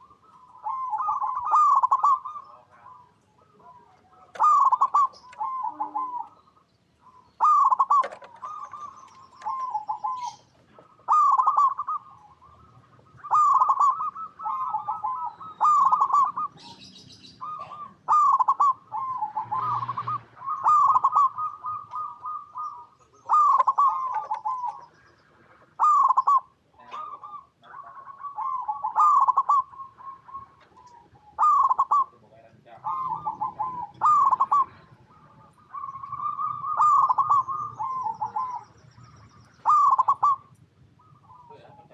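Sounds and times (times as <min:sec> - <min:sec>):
zebra dove cooing: 0:00.0 - 0:41.9.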